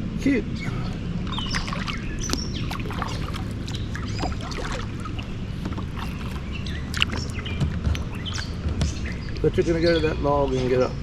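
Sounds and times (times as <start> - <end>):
bird chirps and whistles: 1.3 - 9.3.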